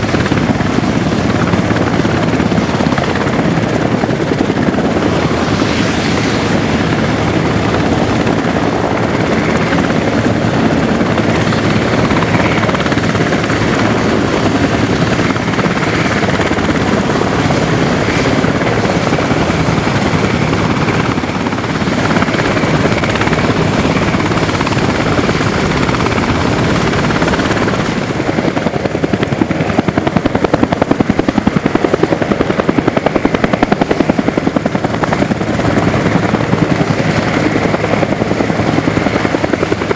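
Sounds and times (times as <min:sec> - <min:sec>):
helicopter rotor and turbine: 0:00.0 - 0:39.9.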